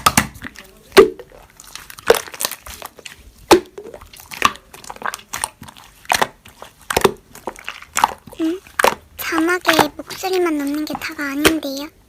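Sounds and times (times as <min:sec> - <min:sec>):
slime crunchy pops and clicks: 0:00.0 - 0:10.0.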